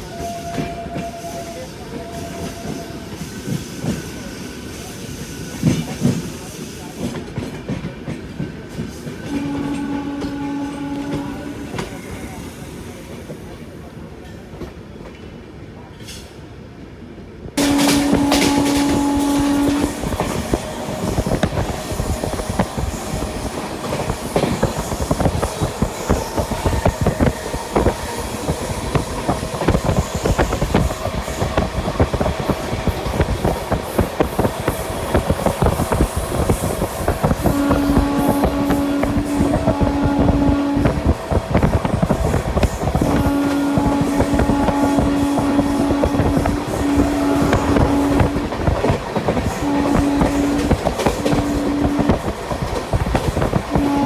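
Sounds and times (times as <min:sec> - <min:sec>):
train horn blast: 0:00.0 - 0:03.1, 0:09.2 - 0:12.4, 0:17.6 - 0:54.0
train rumble: 0:00.0 - 0:16.3, 0:17.0 - 0:54.0
train wheels clickety-clack: 0:00.0 - 0:16.4, 0:17.6 - 0:54.0.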